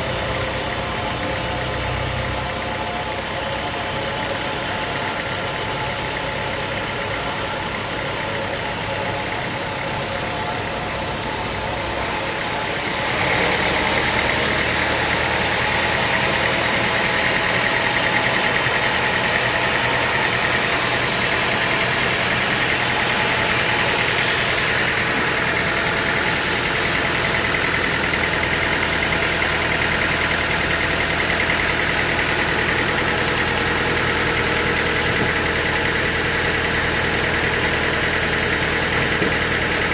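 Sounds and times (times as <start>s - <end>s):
high whine: 0.0s - 28.1s
sawmill machinery droning: 0.0s - 39.9s.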